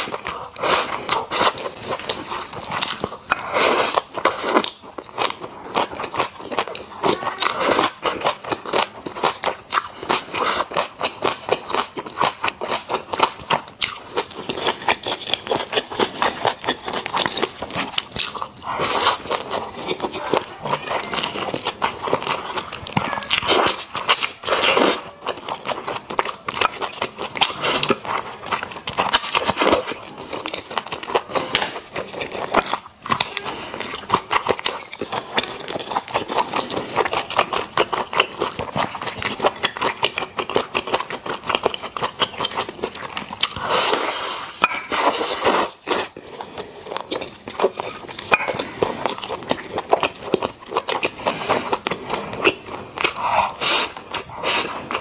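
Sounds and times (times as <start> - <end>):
chewing with wet mouth clicks: 0.0 - 55.0.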